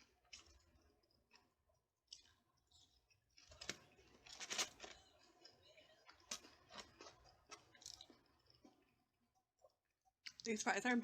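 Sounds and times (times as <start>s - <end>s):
chewing and mouth clicks: 0.0s - 10.6s
crisp crunches: 3.4s - 5.2s.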